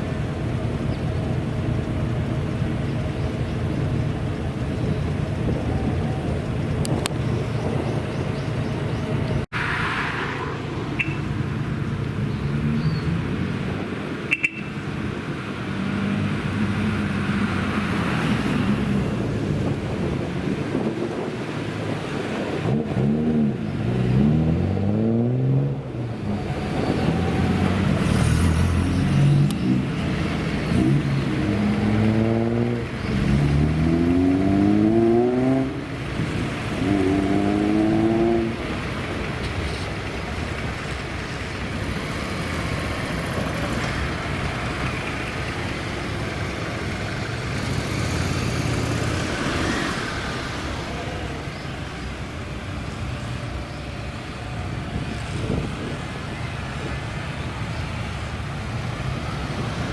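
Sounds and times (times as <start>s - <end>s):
car engines accelerating: 0.0s - 59.9s
road noise: 0.0s - 59.9s.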